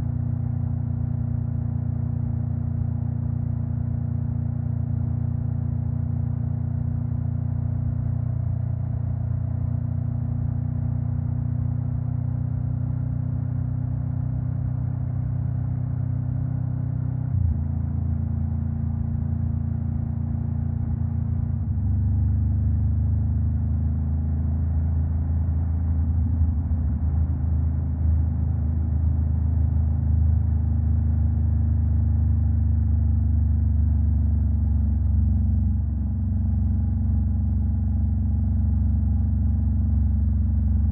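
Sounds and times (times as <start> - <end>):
motorcycle engine running: 22.8 - 40.9.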